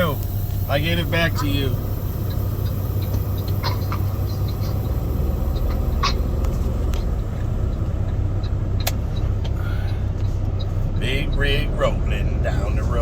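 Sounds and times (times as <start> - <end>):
road noise: 0.0 - 13.0
truck diesel engine rumble: 0.0 - 13.0.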